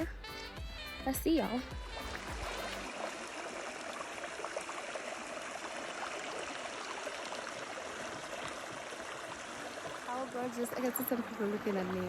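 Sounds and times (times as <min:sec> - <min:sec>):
background music: 0:00.0 - 0:02.9
stream water flowing: 0:00.0 - 0:12.0.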